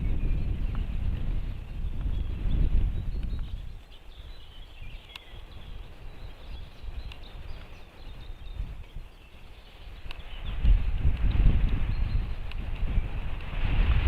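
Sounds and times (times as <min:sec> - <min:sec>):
high bird chirps: 0:00.0 - 0:10.8
wind rumble on microphone: 0:00.0 - 0:14.0.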